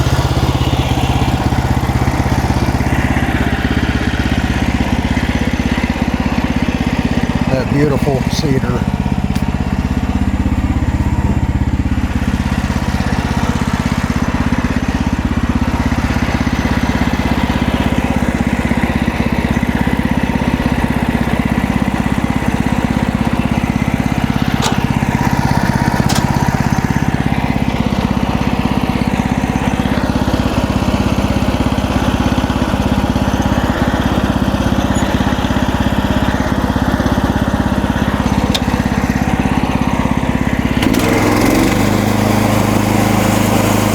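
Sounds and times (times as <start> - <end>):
gas engine running under load: 0.0 - 43.9
band saw blade cutting log: 23.1 - 26.7, 38.0 - 39.2, 40.8 - 43.9.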